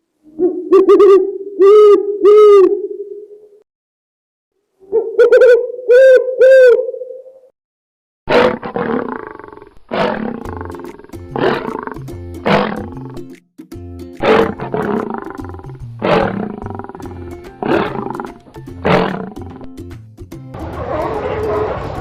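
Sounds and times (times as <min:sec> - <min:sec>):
big cat roaring: 0:08.3 - 0:13.3, 0:14.2 - 0:19.7
background music: 0:10.4 - 0:22.0.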